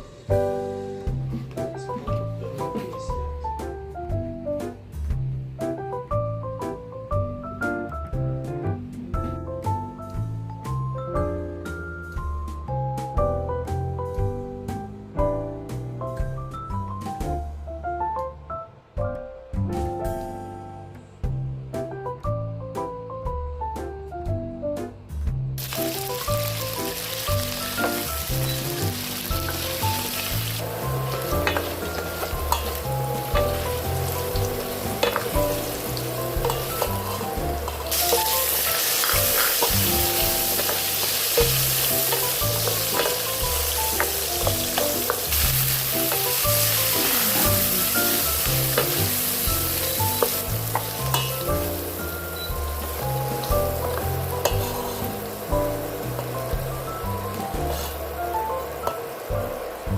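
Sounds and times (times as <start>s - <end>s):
background music with bass: 0.0s - 59.9s
food sizzling in a pan: 25.6s - 59.9s.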